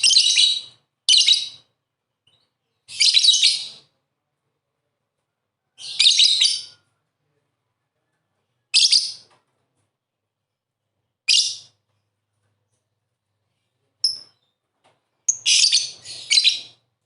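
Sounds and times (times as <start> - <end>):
lovebird chattering chirps: 15.3 - 16.8.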